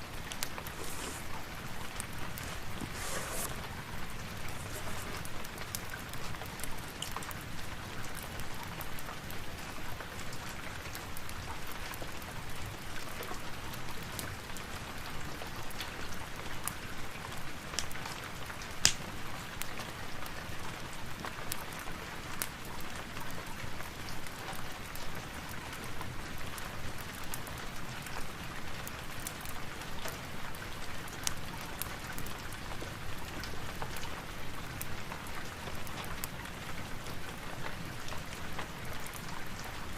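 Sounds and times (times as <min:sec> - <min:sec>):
wood fire crackling and popping: 0:00.0 - 0:09.5, 0:18.6 - 0:19.9
rain falling: 0:00.0 - 0:39.9.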